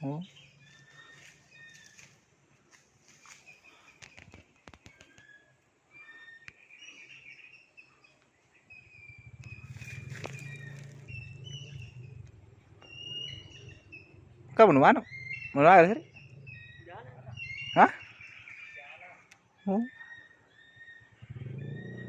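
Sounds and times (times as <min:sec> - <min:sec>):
birds calling: 0:00.0 - 0:22.0
low rumble: 0:08.8 - 0:17.8.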